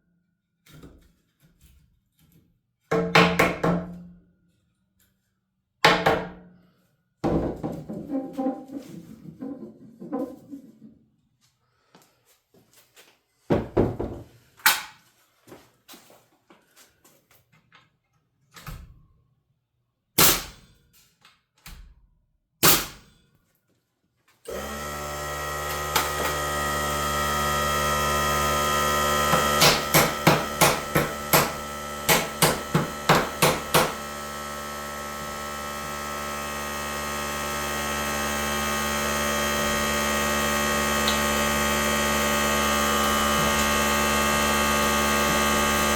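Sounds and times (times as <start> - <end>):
electric motor running: 24.5 - 45.9.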